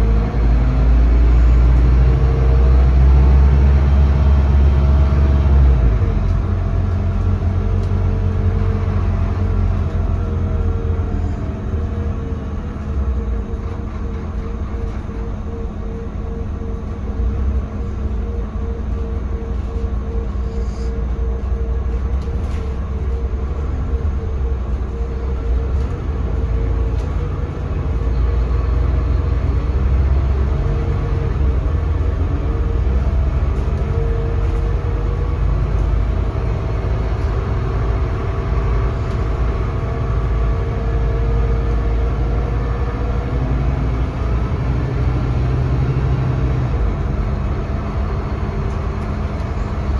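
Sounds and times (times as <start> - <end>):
bus engine droning: 0.0 - 49.9
low road rumble: 0.0 - 49.9.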